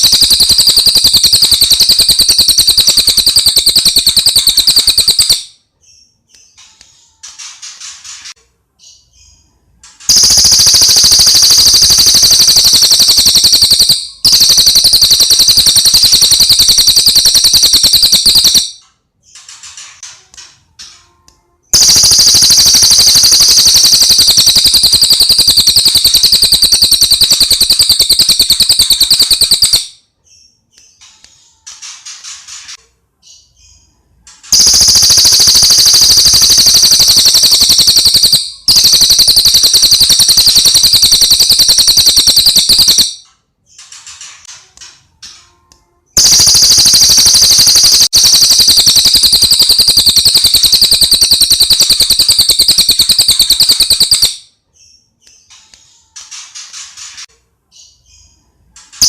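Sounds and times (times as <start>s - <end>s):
bird singing rapid high chirps: 0.0s - 6.2s, 10.1s - 18.8s, 21.7s - 30.0s, 34.5s - 43.2s, 46.2s - 54.4s.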